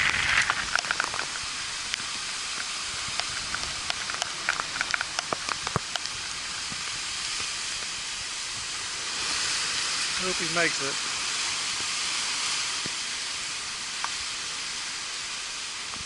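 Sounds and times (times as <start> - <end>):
wind and rain hiss: 0.0 - 16.0
sharp ticks: 1.9 - 6.2.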